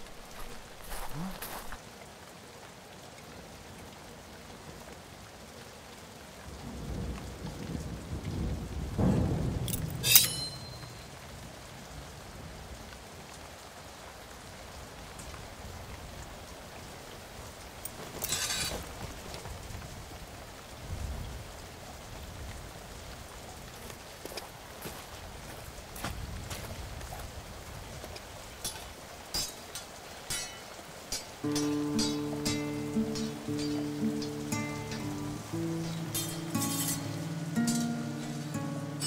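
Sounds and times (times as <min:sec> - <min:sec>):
steady rain: 0:00.0 - 0:39.0
rolling thunder: 0:06.7 - 0:10.0.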